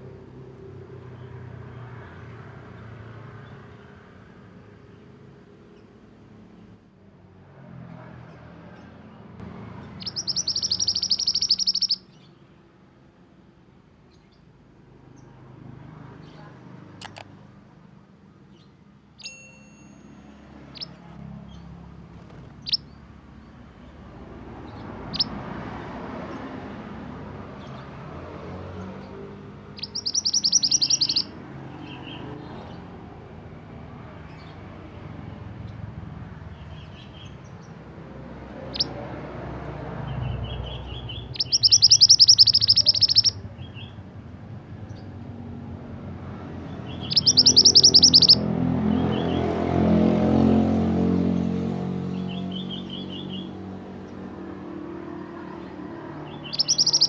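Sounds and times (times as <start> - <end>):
bird chirping: 8.2 - 12.7, 14.0 - 15.4, 16.2 - 17.3, 18.5 - 45.6, 46.2 - 50.4, 51.4 - 57.0
fast buzzy bird trills: 9.9 - 12.1, 29.7 - 32.2, 40.4 - 43.9, 46.7 - 49.4, 56.2 - 57.0.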